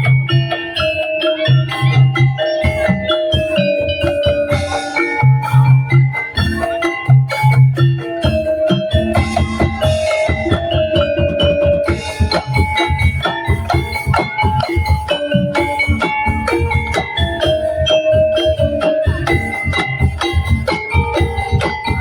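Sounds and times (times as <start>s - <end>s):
fast rhythmic drum percussion: 0.0s - 22.0s
mallet-like melody: 0.0s - 22.0s.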